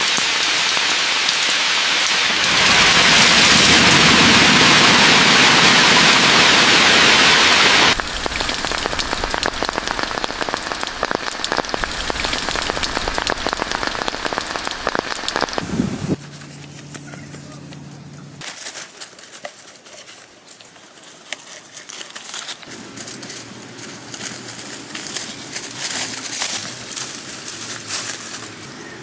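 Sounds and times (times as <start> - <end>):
raindrops ticking: 0.0 - 4.1, 5.5 - 15.6
heavy rain hissing: 0.0 - 16.2.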